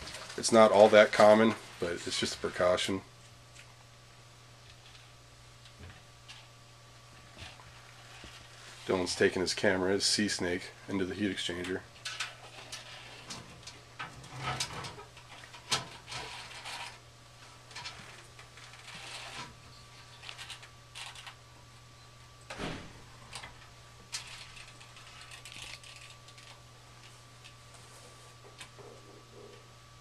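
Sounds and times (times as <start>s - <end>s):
steady low hum: 0.0s - 30.0s
cable clicking and scraping in metal: 11.6s - 17.0s, 17.7s - 19.5s, 24.1s - 27.6s.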